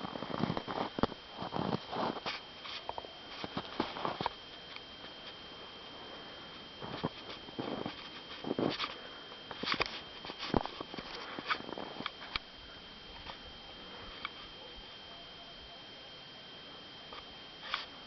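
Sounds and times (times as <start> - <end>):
faint high-pitched whine: 0.0 - 18.0
soft rustles: 6.0 - 12.3.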